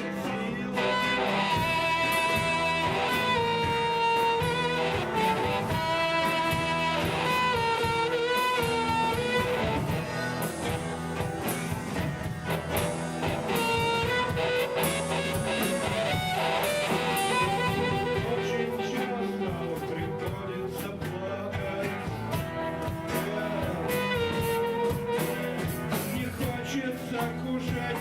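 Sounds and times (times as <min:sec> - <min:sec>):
drums: 0:00.0 - 0:28.0
strummed electric guitar: 0:00.0 - 0:28.0
wavering lead melody: 0:00.8 - 0:20.8.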